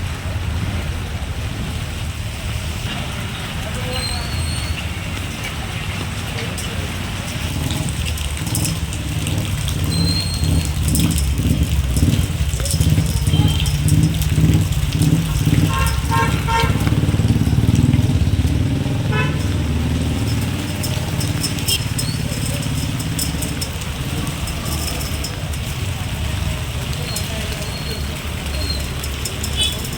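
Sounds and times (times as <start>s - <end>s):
vehicle engine running: 6.9s - 29.9s.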